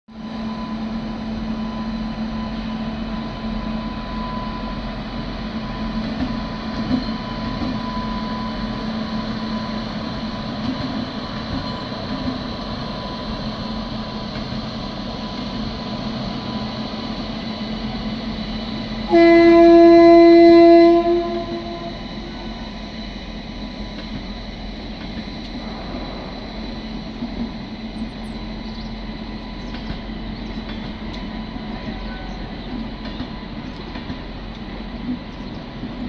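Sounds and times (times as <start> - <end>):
train wheels rumbling on rail: 0.1 - 36.0
train horn: 19.0 - 22.6, 31.8 - 32.5.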